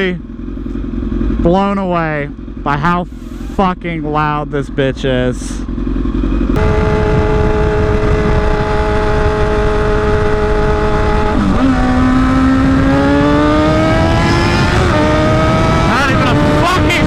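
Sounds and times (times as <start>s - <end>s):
raspy motorcycle engine revving: 0.0s - 17.0s
wind rush: 6.6s - 17.0s.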